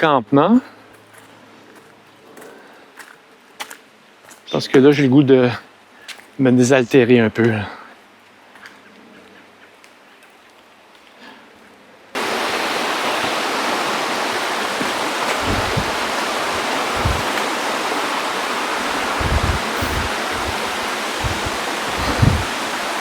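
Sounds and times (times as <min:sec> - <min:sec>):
rushing river water: 0:12.2 - 0:23.0
low thumps: 0:14.8 - 0:17.6, 0:18.8 - 0:22.6.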